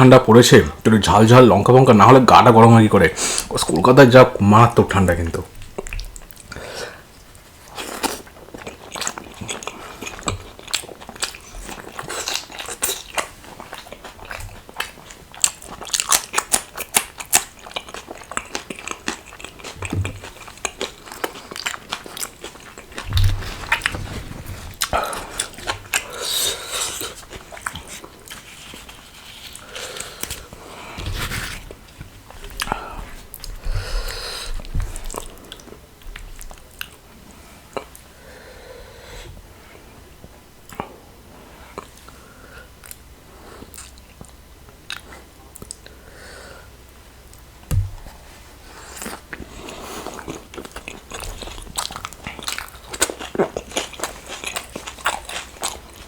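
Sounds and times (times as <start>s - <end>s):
mouth clicks and crunches: 7.3s - 30.6s, 48.9s - 56.0s
wet chewing and biting: 7.7s - 30.5s, 49.0s - 56.0s.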